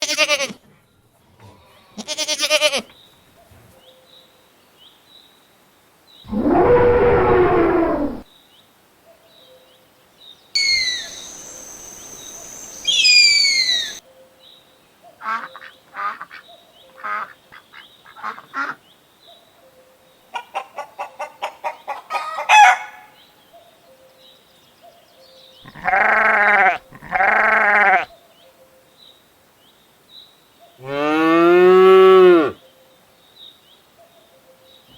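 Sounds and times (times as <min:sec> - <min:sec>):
falling whistle-like calls: 0:06.3 - 0:08.2, 0:10.6 - 0:14.0
animal calls: 0:06.3 - 0:08.3, 0:10.6 - 0:14.0, 0:25.6 - 0:28.1.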